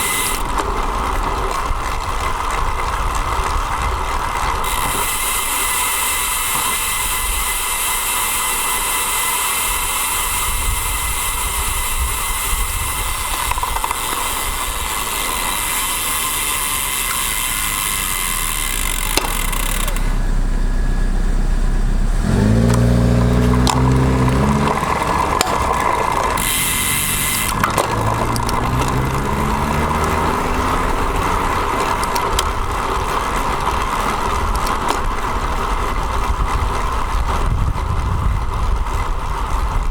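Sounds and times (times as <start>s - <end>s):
bike tyres on road: 0.0s - 39.9s
wind noise: 9.7s - 15.6s, 22.2s - 39.9s
vehicle engine hum: 9.8s - 39.9s.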